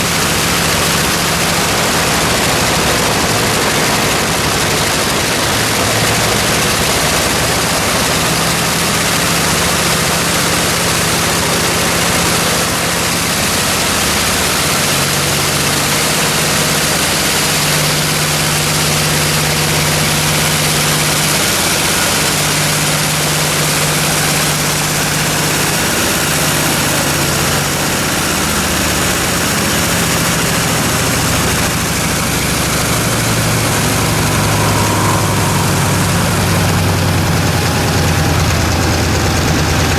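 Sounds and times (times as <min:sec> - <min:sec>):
radial aircraft engine droning: 0:00.0 - 0:39.9.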